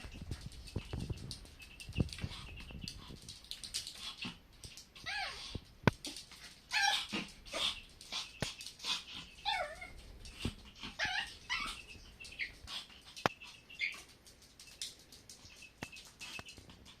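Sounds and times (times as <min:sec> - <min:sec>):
puppy whimpering: 0:05.0 - 0:05.6, 0:06.7 - 0:07.8, 0:09.4 - 0:11.9.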